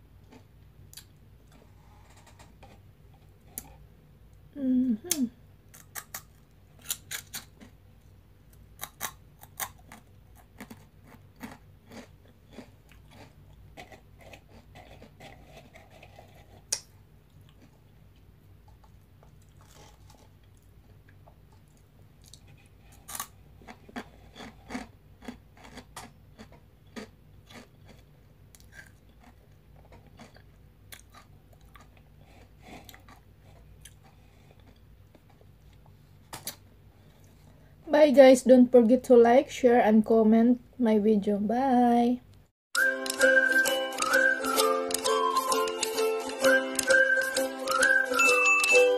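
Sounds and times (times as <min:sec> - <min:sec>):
crunchy snack chewing: 0:05.7 - 0:07.8, 0:08.5 - 0:17.9, 0:18.7 - 0:36.6.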